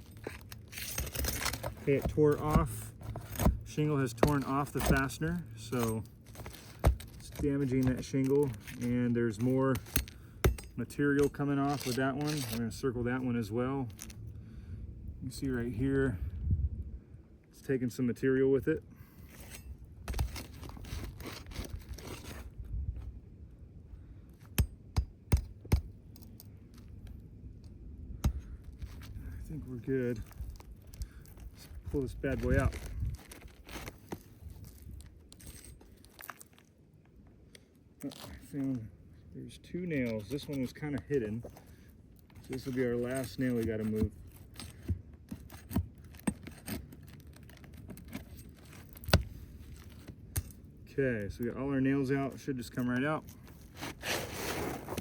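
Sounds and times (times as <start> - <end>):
metal clicks and scraping: 0.0 - 12.8
shingle scraping and tearing: 0.0 - 14.2, 19.0 - 22.6, 28.2 - 36.8, 38.0 - 38.8, 39.5 - 51.4, 52.0 - 55.0.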